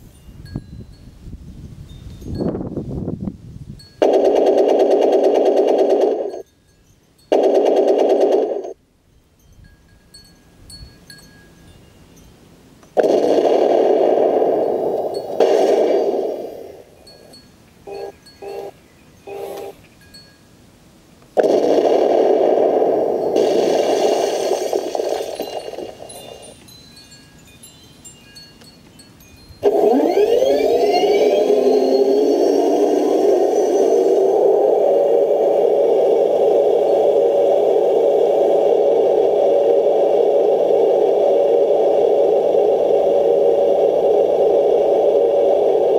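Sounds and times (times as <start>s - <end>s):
toy tank rapid rattling buzz: 4.0s - 6.4s, 7.3s - 8.8s, 21.4s - 26.6s
electric motors whirring: 29.6s - 36.8s.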